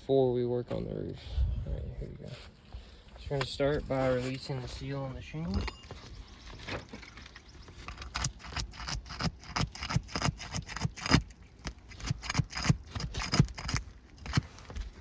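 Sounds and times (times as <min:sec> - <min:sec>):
metal tool scraping shingle: 0:05.6 - 0:15.0.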